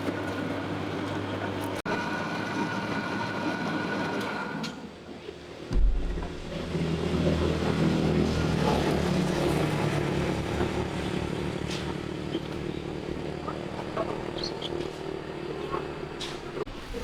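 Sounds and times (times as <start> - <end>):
motor running with pulsing throb: 5.7 - 16.7.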